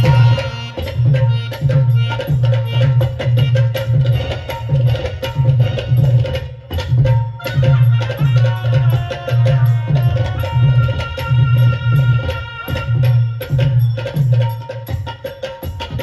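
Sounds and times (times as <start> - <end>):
hand drum beat: 0.0 - 16.0.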